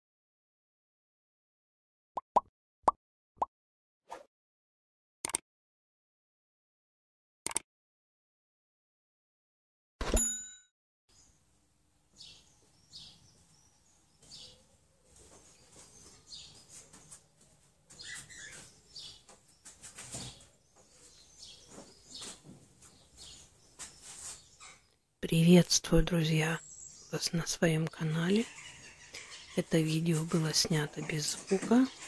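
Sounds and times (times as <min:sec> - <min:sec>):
small birds chirping: 0:12.1 - 0:32.0.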